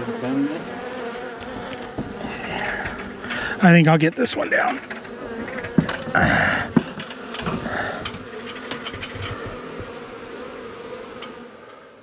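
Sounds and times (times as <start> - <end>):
bees buzzing: 0.0 - 12.0
sharp knocks: 1.4 - 10.1
loud rustle: 4.2 - 11.2.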